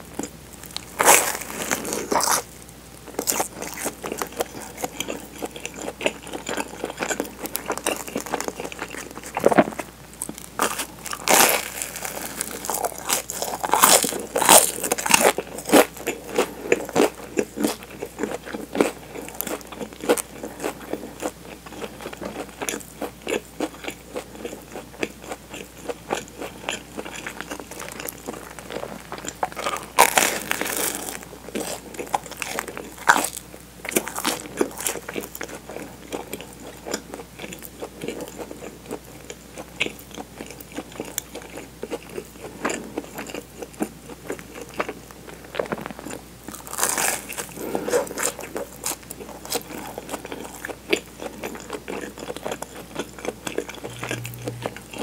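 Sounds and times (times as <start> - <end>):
chewing crunchy toasted bread: 0.0 - 55.0.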